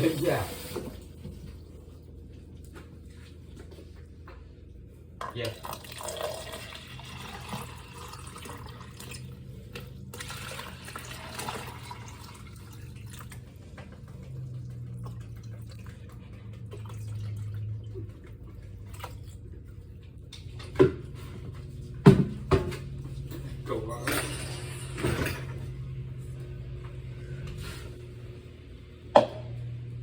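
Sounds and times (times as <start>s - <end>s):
water running: 0.0s - 1.7s, 5.3s - 26.9s
low pump hum: 0.0s - 30.0s.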